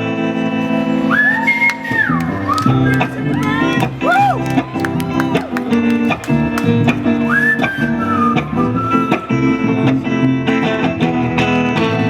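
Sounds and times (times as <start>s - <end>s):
guitar chords: 0.0s - 12.0s
whistled melody: 1.0s - 5.6s, 6.4s - 9.8s.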